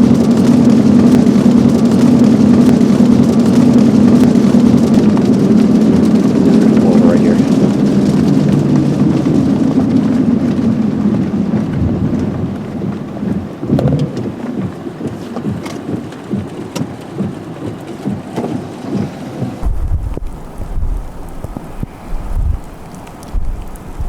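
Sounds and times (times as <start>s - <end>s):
car road noise: 0.0s - 24.0s
rain patter: 0.0s - 24.0s
deep low rumble: 1.0s - 14.4s, 19.6s - 24.0s.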